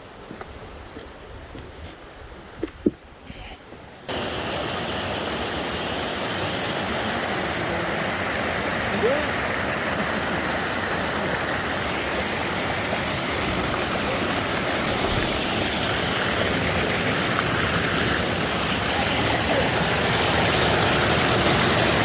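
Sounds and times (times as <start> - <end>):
mountain stream rushing: 0.0 - 22.0.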